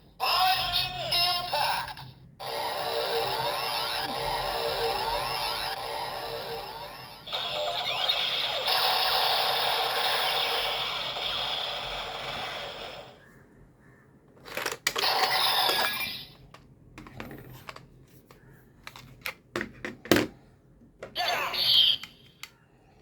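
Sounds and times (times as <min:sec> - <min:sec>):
toy electronic sound effect: 0:00.2 - 0:13.1, 0:15.0 - 0:16.4, 0:21.2 - 0:22.3.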